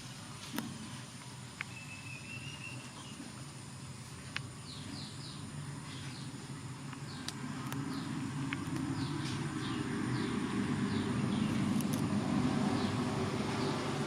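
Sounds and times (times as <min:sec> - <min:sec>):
steady low hum: 0:00.0 - 0:14.0
bird whistling and chirping: 0:01.7 - 0:03.2.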